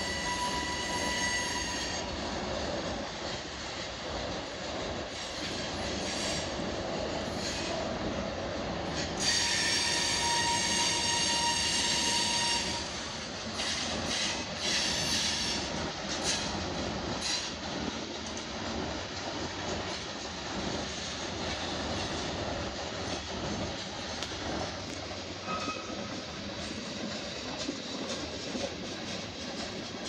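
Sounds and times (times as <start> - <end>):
high wheel squeal: 0.0 - 2.1, 9.2 - 12.9, 25.4 - 26.1
train wheels rumbling and clattering: 0.0 - 30.0.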